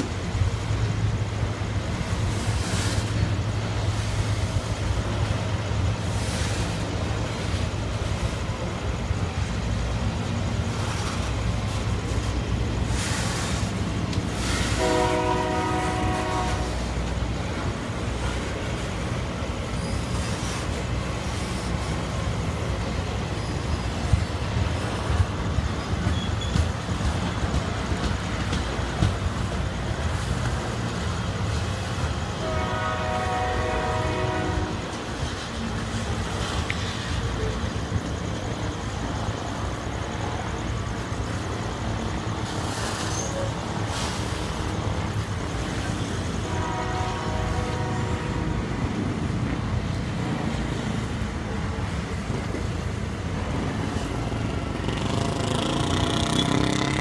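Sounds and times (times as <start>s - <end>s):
train wheels rumbling on rails: 0.0s - 57.0s
train horn blasts: 14.4s - 16.9s, 32.4s - 35.0s, 46.5s - 48.7s.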